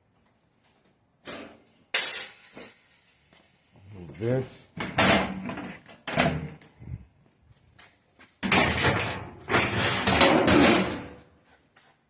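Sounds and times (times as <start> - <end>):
sheet metal sliding and rattling: 8.4 - 11.2.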